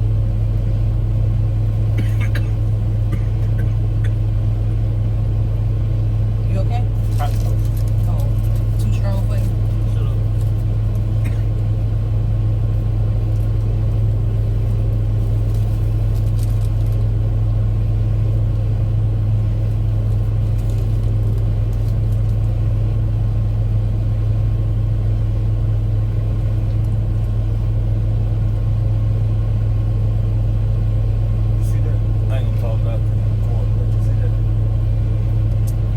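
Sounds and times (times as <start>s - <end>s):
vehicle engine idling: 0.0s - 35.9s
faint clicks and rustles: 6.9s - 11.2s, 14.5s - 17.1s, 19.7s - 22.6s.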